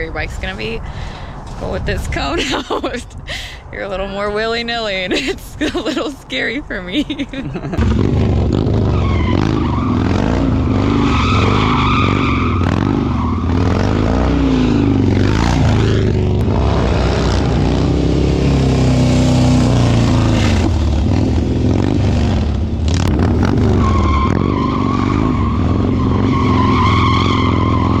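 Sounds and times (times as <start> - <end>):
motorcycle engine revving: 7.8 - 28.0.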